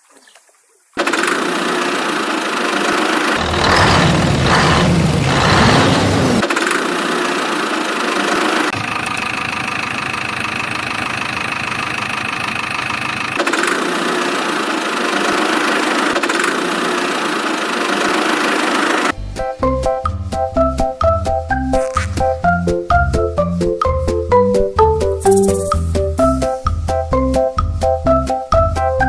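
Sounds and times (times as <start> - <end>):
engine idling: 1.0 - 19.1.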